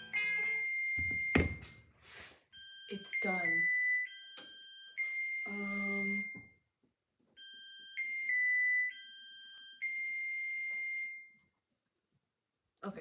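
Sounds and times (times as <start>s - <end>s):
oven alert beeping tune: 0.0s - 1.7s, 2.6s - 6.4s.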